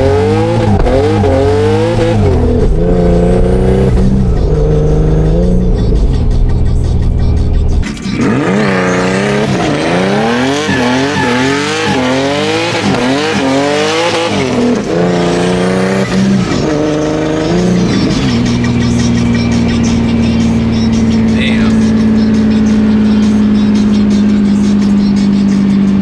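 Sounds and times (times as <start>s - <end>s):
car engine revving: 0.0s - 26.0s
tyre squeal: 7.9s - 14.4s.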